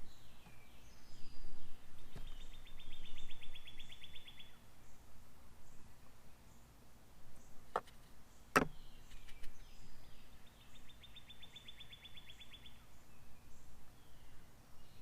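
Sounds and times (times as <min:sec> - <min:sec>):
faint bird chirps: 0:00.0 - 0:06.7, 0:07.3 - 0:15.0
songbird trilling: 0:08.5 - 0:15.0
sharp knocks: 0:08.6 - 0:08.8.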